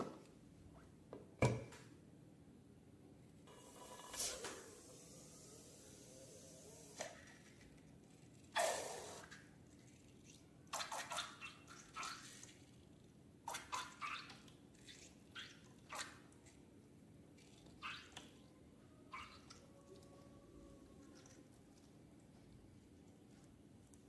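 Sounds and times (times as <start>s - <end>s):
wet slime squelches and drips: 9.2s - 16.7s, 17.3s - 18.5s, 19.1s - 20.3s, 20.9s - 24.0s.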